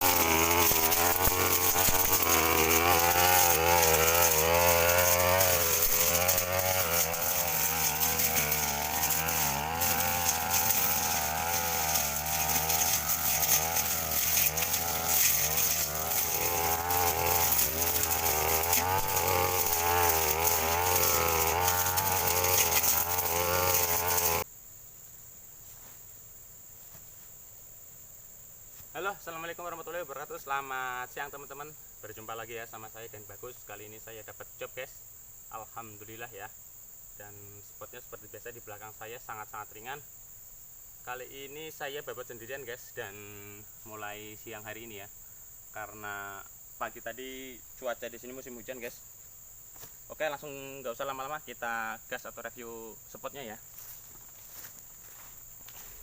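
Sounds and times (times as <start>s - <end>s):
brush cutter engine running: 0.0s - 24.4s, 53.8s - 56.0s
faint insect drone: 0.0s - 56.0s.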